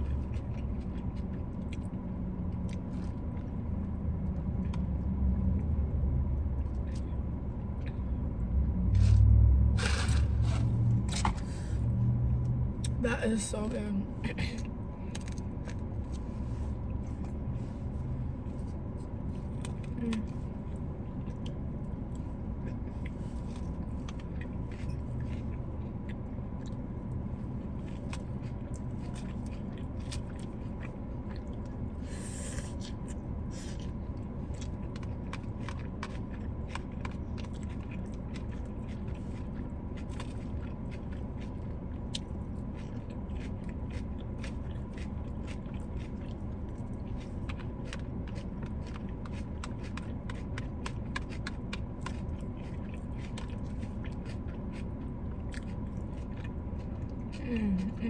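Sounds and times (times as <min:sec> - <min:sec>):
chewing and biting: 0:00.0 - 0:05.8, 0:06.5 - 0:08.1, 0:08.9 - 0:13.0, 0:14.5 - 0:58.0
steady low hum: 0:00.0 - 0:58.0
food handling clicks and scrapes: 0:09.0 - 0:11.8, 0:47.1 - 0:54.8.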